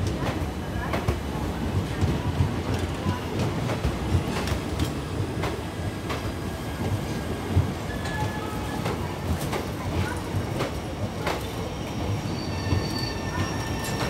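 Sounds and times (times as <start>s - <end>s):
train rumble: 0.0s - 14.0s
faint high wheel squeal: 12.2s - 14.0s.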